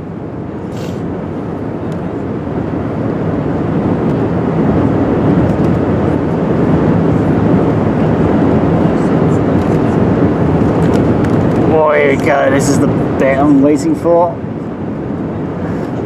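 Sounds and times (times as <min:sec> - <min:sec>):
aircraft cabin engine roar: 0:00.0 - 0:16.0.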